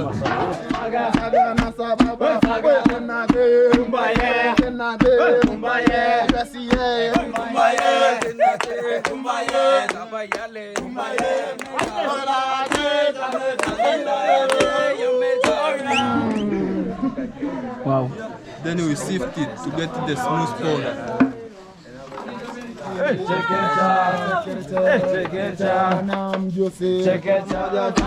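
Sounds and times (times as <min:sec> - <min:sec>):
group of voices singing: 0:00.0 - 0:21.6, 0:22.4 - 0:28.0
wooden pestle pounding in mortar: 0:00.6 - 0:14.8.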